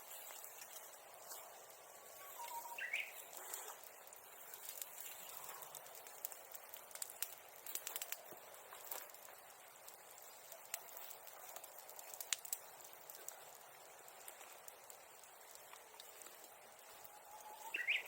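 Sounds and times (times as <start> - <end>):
bonfire crackling and popping: 0.0 - 18.0
bird whistling: 2.2 - 3.2, 17.5 - 18.0.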